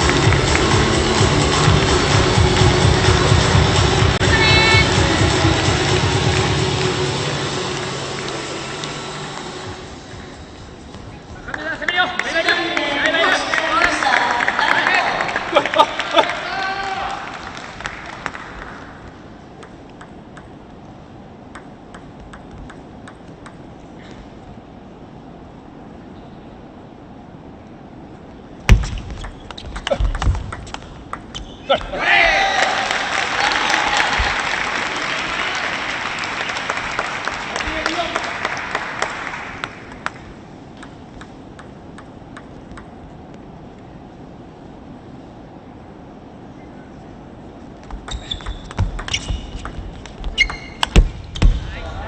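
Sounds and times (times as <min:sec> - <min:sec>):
audience applause: 0:00.0 - 0:04.2, 0:11.4 - 0:19.1, 0:32.2 - 0:40.3
low arena hiss: 0:00.0 - 0:52.0
table tennis ball clicking: 0:19.6 - 0:20.9, 0:21.5 - 0:23.7, 0:40.7 - 0:43.0, 0:48.0 - 0:51.0.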